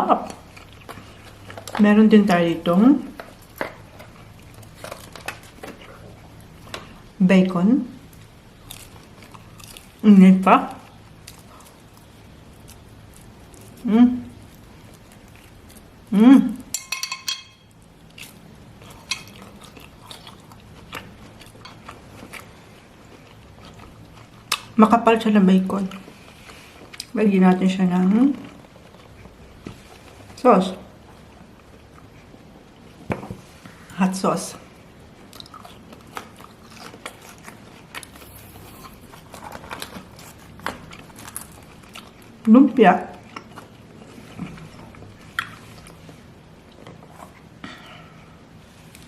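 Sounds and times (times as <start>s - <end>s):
biting and chewing bacon: 0.0s - 7.2s, 8.0s - 10.0s, 10.6s - 16.1s, 17.6s - 24.8s, 34.7s - 49.0s
cutlery clinking against dish: 16.7s - 17.6s.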